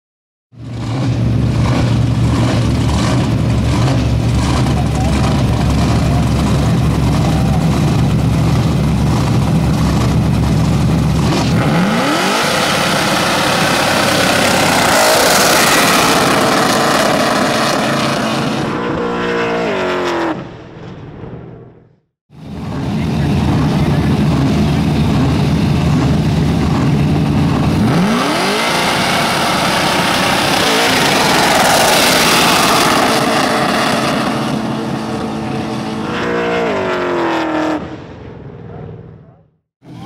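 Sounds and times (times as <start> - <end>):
car engine idling and revving: 0.5 - 40.0
tyres spinning on asphalt: 22.6 - 35.6.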